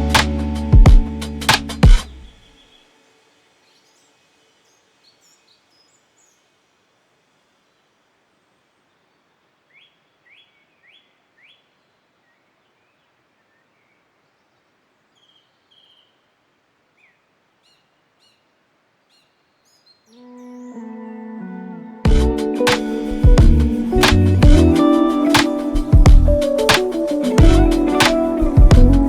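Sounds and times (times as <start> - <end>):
faint background hiss: 0.0 - 29.0
small birds chirping: 2.2 - 3.0, 3.6 - 6.6, 8.6 - 20.9.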